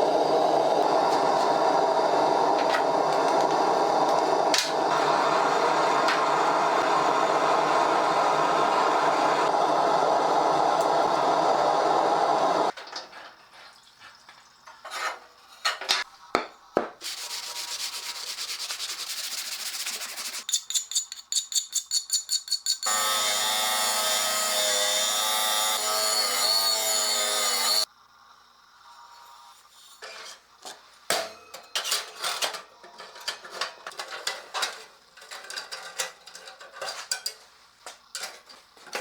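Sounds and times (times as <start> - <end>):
abrasive sanding: 17.0 - 20.5
rapid back-and-forth strokes: 17.1 - 21.4
power tool running: 22.9 - 27.9.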